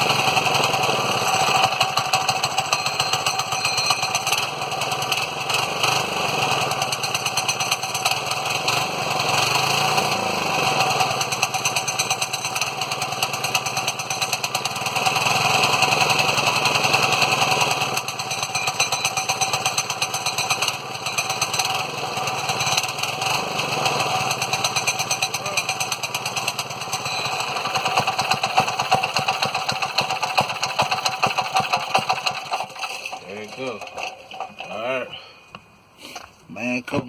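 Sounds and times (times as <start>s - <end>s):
small engine revving: 0.0s - 35.1s.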